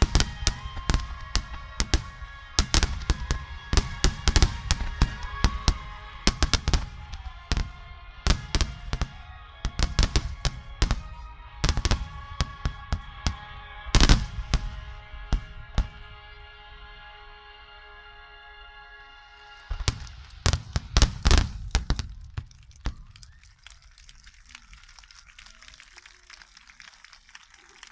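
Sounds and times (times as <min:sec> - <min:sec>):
fireworks bursting: 0:00.0 - 0:16.1, 0:19.7 - 0:26.9
music with sustained tones: 0:00.0 - 0:21.0.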